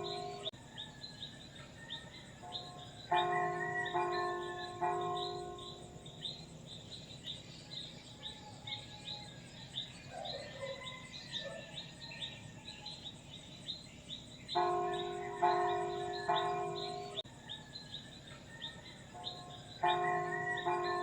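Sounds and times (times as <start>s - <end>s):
high-pitched rhythmic chirping: 0.0s - 0.6s.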